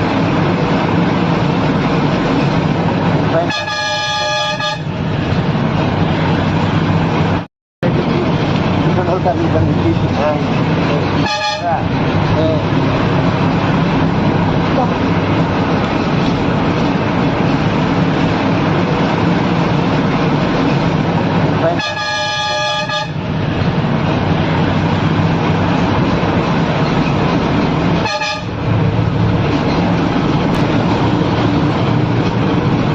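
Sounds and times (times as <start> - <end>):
vehicle engine and road rumble: 0.0 - 32.9
vehicle horn honking: 3.4 - 4.9, 11.2 - 11.8, 21.8 - 23.2, 28.0 - 28.6.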